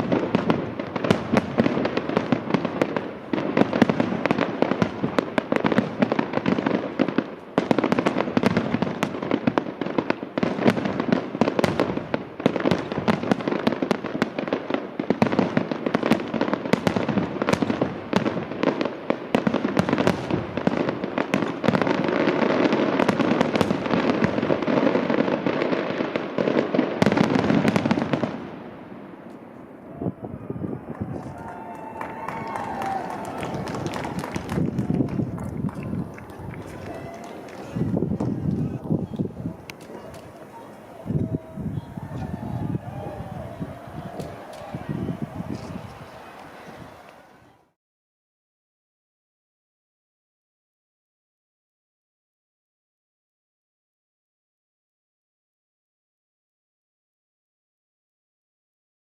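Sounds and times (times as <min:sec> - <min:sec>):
fireworks bangs and crackles: 0:00.0 - 0:47.6.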